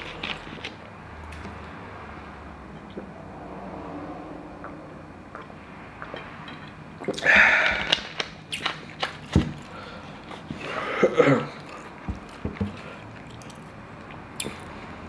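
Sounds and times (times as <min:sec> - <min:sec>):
wet chewing clicks: 0:07.1 - 0:09.7, 0:11.6 - 0:15.0.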